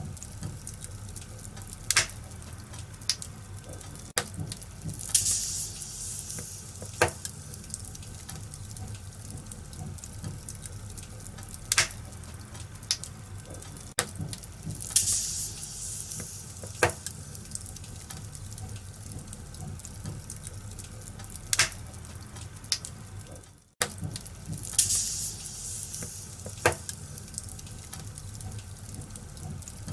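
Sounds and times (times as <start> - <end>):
wood fire crackling: 0.0 - 29.9
hissing flare-ups: 4.8 - 8.6, 14.8 - 18.6, 24.6 - 28.2.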